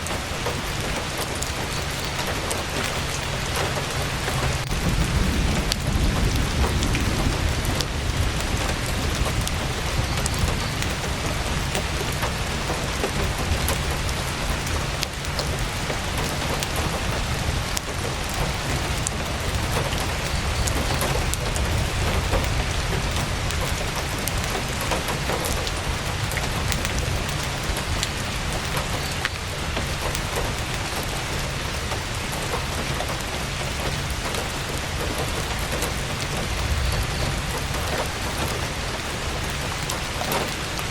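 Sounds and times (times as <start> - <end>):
rain pattering on tent fabric: 0.0 - 40.9.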